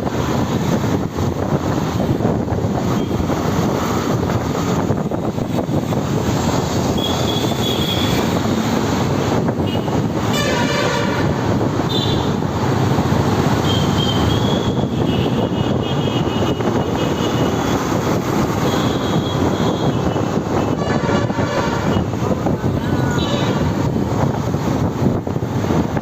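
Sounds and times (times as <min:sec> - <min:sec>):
wind noise on microphone: 0:00.0 - 0:26.0
horn-like blare: 0:10.3 - 0:11.4, 0:20.7 - 0:22.1.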